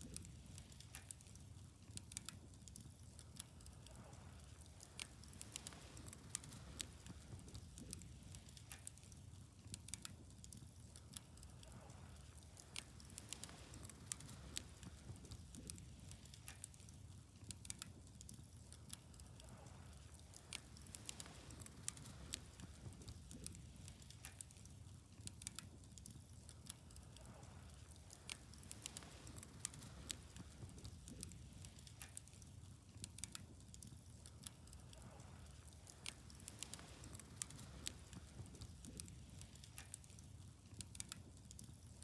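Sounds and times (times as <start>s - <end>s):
bonfire crackling faintly: 0.0s - 42.0s.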